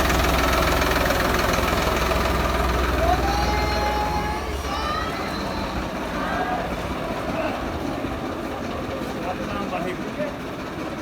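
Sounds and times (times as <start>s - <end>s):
tractor engine idling: 0.0s - 11.0s
voices calling: 2.2s - 10.6s.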